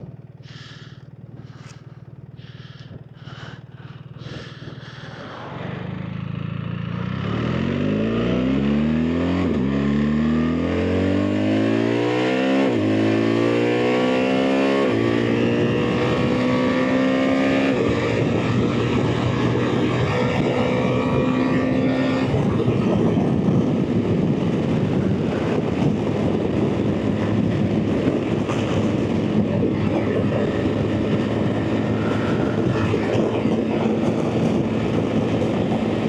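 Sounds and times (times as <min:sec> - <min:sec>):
motorcycle engine: 0:00.0 - 0:36.0
engine knocks: 0:00.4 - 0:05.0.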